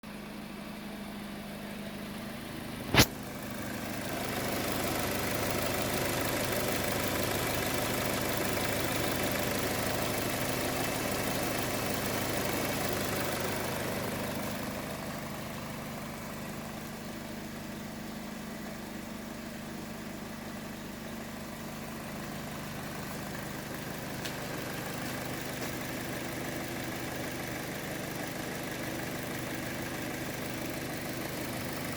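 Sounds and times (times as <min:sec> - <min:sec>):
car engine idling: 0:00.0 - 0:31.9
sharp click: 0:02.9 - 0:03.1.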